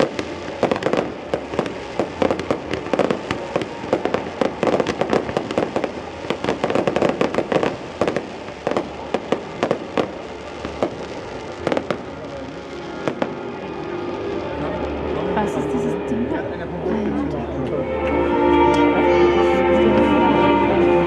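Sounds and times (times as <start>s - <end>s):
fireworks bangs and crackles: 0.0s - 16.1s.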